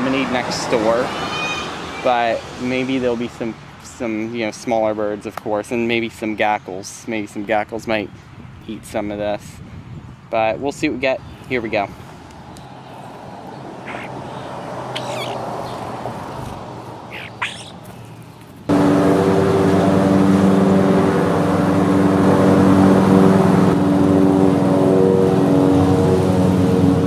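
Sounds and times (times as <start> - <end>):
outdoor background noise: 0.0 - 27.0
short bird chirps: 13.8 - 14.1, 14.9 - 15.8, 17.1 - 17.8
loud motor drone with hum: 18.7 - 27.0.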